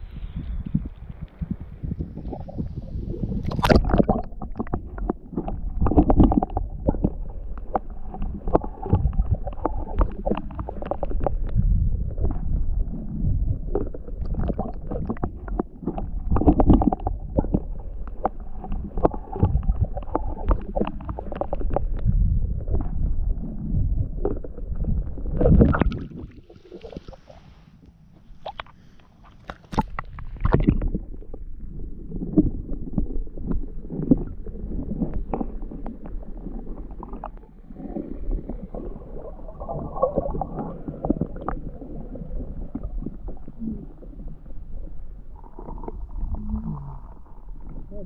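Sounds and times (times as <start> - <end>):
microphone handling noise: 0.0 - 27.5, 28.1 - 31.5
wind rumble: 0.0 - 28.5
water gurgling around boat: 0.0 - 48.0.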